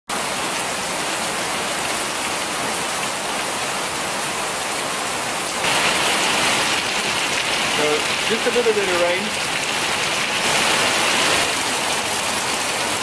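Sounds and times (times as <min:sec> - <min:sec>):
rain pouring: 0:00.1 - 0:13.0.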